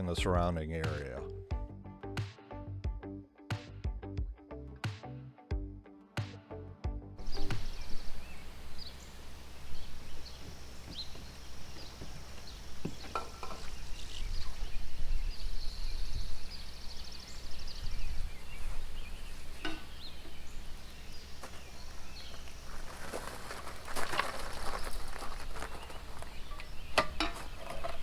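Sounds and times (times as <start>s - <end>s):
loud rustling: 7.2s - 28.0s
small birds chirping: 7.2s - 28.0s.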